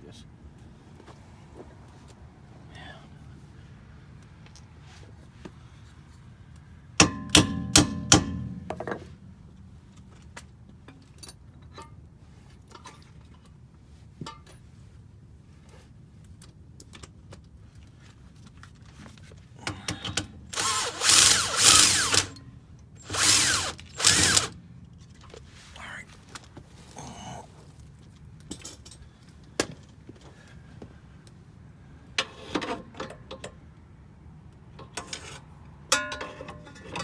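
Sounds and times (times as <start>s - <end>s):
power tool running in bursts: 20.5s - 22.4s, 23.0s - 24.5s
tools clicking on metal: 20.6s - 22.4s, 23.1s - 24.5s.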